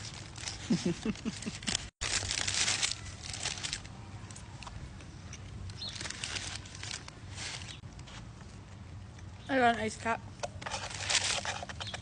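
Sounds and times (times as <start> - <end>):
paper wrapping crinkling: 0.0 - 3.9, 5.8 - 7.8, 10.6 - 12.0.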